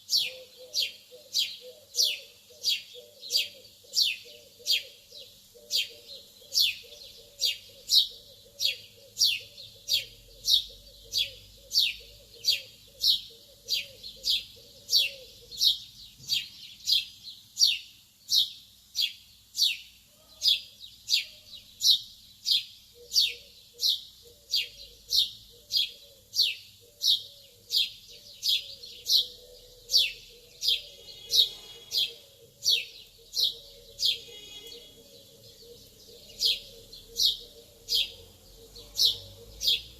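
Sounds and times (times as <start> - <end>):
low bird warbling: 0.0 - 15.8, 23.0 - 39.9.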